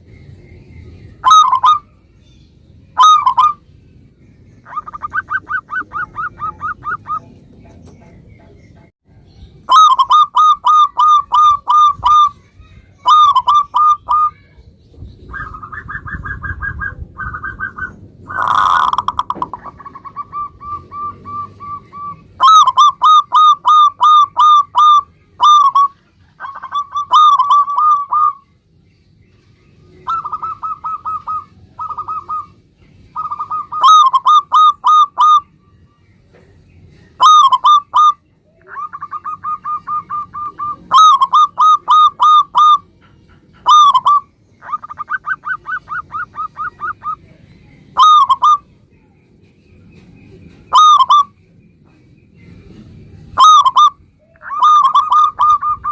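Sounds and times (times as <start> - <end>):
dove cooing: 1.2 - 2.0, 3.0 - 3.6, 4.6 - 8.6, 9.7 - 12.4, 13.0 - 14.4, 15.3 - 28.4, 29.9 - 35.5, 37.2 - 47.4, 48.0 - 48.6, 50.5 - 51.4, 53.4 - 55.9.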